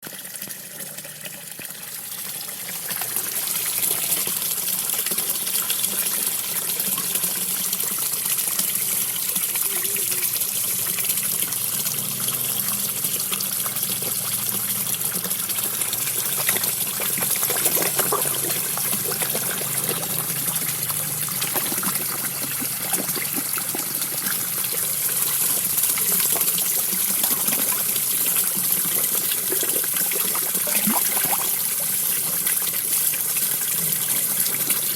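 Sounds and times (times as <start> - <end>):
small waterfall splashing: 0.0 - 34.9
fish feeding pops and splashes: 15.2 - 32.8.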